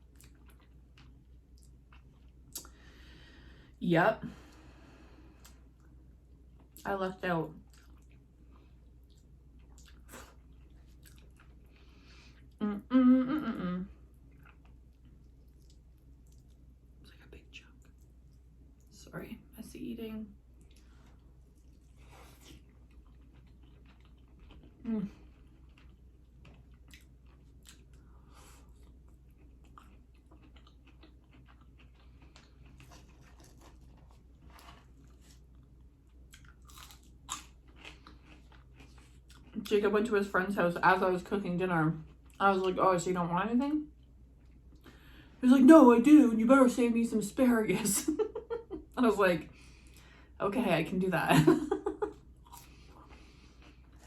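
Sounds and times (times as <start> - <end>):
chewing and wet mouth sounds: 0.0 - 2.9, 7.5 - 12.6, 14.0 - 19.0, 20.5 - 39.9, 42.0 - 42.8, 52.0 - 54.0.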